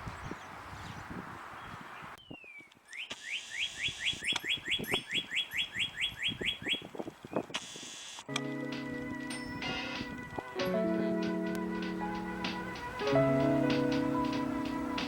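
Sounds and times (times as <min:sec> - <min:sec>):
bird whistling rising notes: 0:02.2 - 0:07.4.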